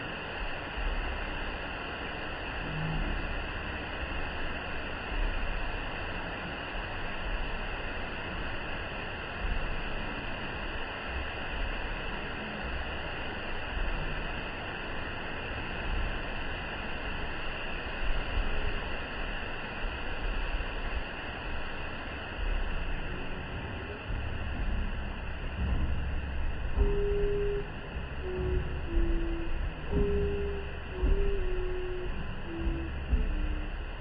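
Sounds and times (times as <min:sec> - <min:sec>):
low thumps: 0:22.4 - 0:34.0.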